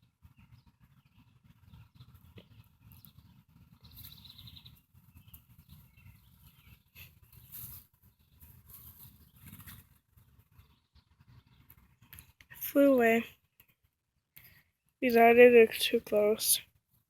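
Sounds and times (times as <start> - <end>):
bird chirping: 0.0 - 16.6.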